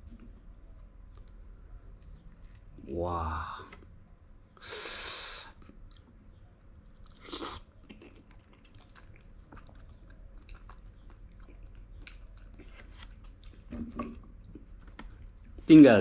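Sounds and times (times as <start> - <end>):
person chewing wet clicks: 5.6 - 15.6.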